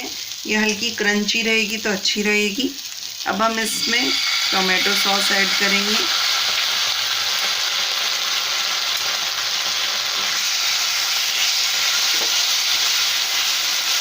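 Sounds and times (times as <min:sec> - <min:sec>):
onions sizzling in a pan: 0:00.0 - 0:14.0.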